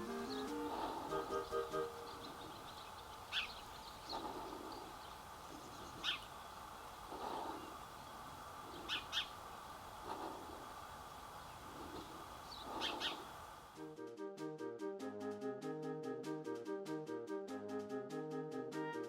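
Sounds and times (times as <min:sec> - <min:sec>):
short high bird calls: 0:00.0 - 0:06.4, 0:08.6 - 0:09.5, 0:11.4 - 0:13.4
low bird calls: 0:00.0 - 0:13.6.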